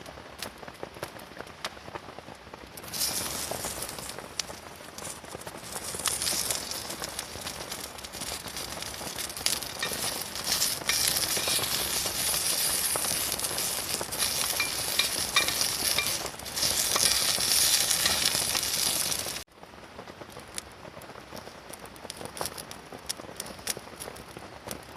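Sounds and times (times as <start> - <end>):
food sizzling in a hot pan: 2.8 - 19.5.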